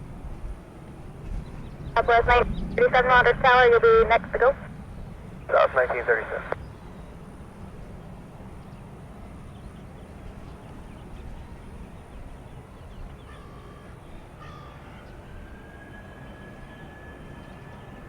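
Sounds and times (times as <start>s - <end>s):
wind on microphone: 0.0s - 5.5s
faint rising jet engine whine: 0.0s - 18.0s
crow-like caws: 13.3s - 15.1s.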